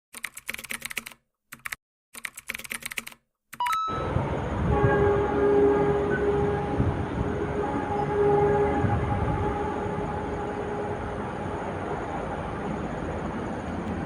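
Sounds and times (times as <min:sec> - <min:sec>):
keyboard typing clicks: 0:00.1 - 0:03.9
brief gliding tone: 0:03.6 - 0:06.8
high-speed train running noise: 0:03.9 - 0:14.0.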